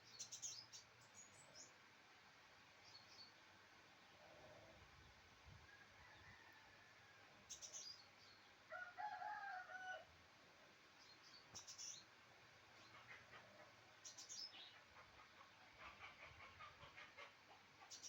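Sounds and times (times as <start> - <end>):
small birds chirping: 0.0 - 1.8, 2.7 - 5.2, 7.5 - 8.6, 10.9 - 18.0
faint rooster crowing: 5.5 - 7.6, 8.7 - 10.2.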